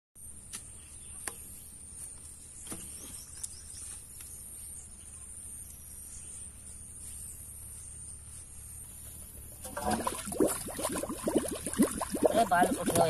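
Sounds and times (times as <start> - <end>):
rural background noise: 0.2 - 13.0.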